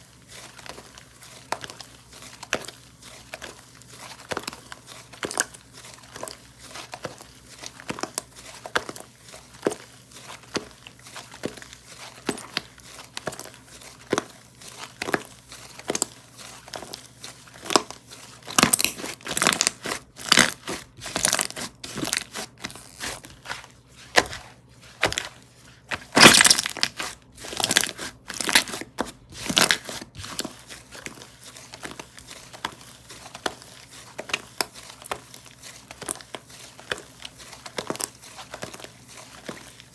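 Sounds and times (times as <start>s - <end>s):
slime squished by hand: 0.4s - 39.9s.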